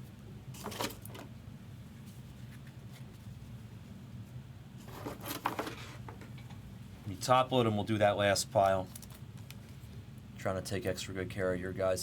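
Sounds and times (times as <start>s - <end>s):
steady low hum: 0.0s - 12.0s
rustle of trading cards: 8.7s - 10.0s.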